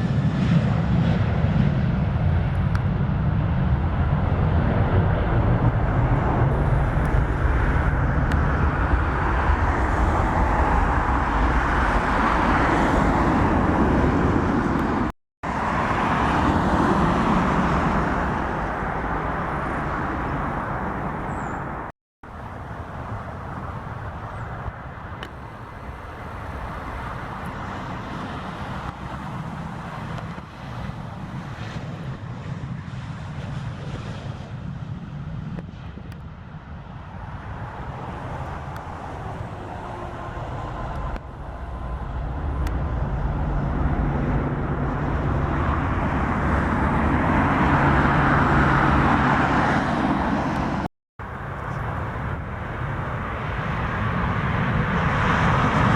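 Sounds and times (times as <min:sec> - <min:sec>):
jet engines rushing: 0:00.0 - 0:35.7, 0:36.6 - 0:55.9
low hum: 0:13.4 - 0:27.4.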